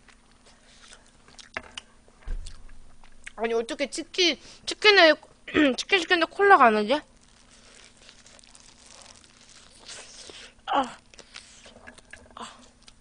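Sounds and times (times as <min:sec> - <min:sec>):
chewing fried chicken: 0:00.0 - 0:02.6, 0:07.0 - 0:13.0.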